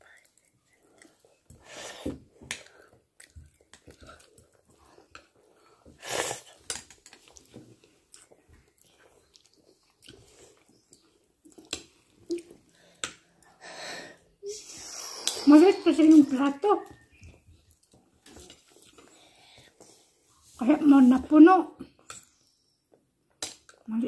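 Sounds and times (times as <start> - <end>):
chewing and mouth noises: 2.6 - 5.4, 7.2 - 12.8.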